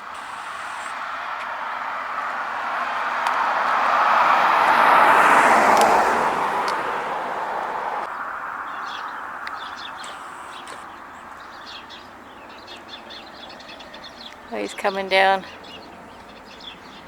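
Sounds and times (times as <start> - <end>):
car driving past: 0.0 - 14.6
small birds chirping: 8.0 - 17.0.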